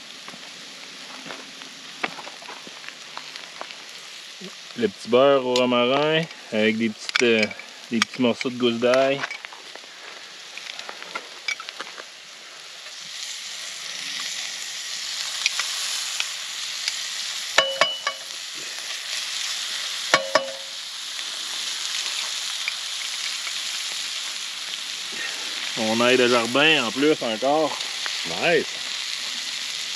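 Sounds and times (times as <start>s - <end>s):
steak sizzling in a pan: 0.0s - 29.9s
metal utensil clinking on pan: 17.6s - 18.3s, 20.1s - 20.8s.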